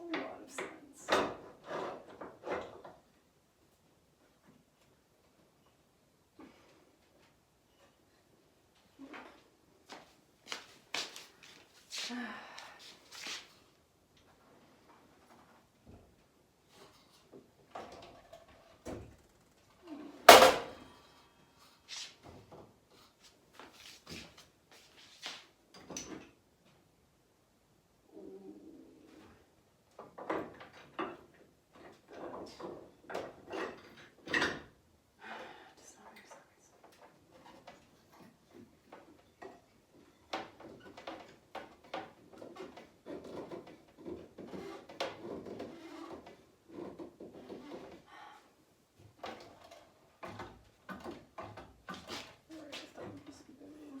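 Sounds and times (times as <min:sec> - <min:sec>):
wooden boards knocking and clattering: 0:20.3 - 0:20.9.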